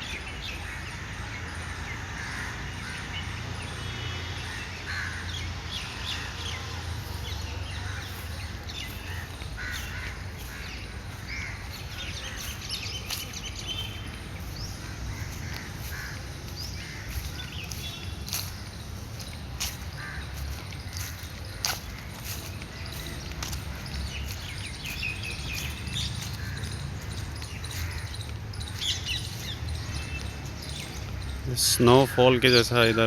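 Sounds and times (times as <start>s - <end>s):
birds chirping: 0.0s - 33.0s
crow-like caws: 2.1s - 3.2s, 4.4s - 5.5s, 9.0s - 12.5s, 14.8s - 17.8s, 19.9s - 21.1s, 27.6s - 28.2s.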